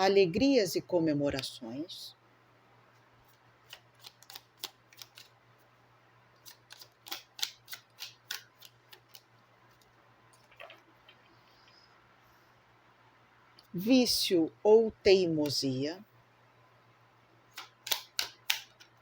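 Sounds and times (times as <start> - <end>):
cards clicking on a table: 3.7 - 5.3, 6.5 - 9.3, 17.6 - 19.0.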